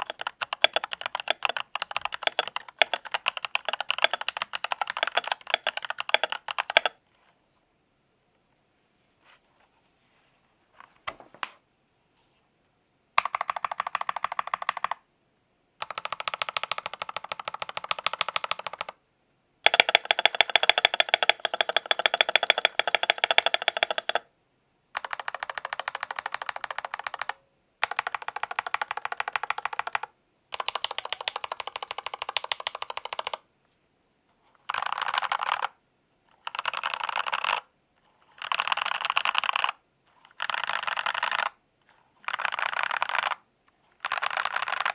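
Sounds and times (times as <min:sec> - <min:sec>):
mechanical keyboard typing: 0:00.0 - 0:07.0, 0:13.2 - 0:15.0, 0:15.8 - 0:19.0, 0:19.6 - 0:24.3, 0:25.0 - 0:33.4, 0:34.6 - 0:35.8, 0:36.4 - 0:41.6, 0:42.2 - 0:43.4, 0:44.0 - 0:44.9.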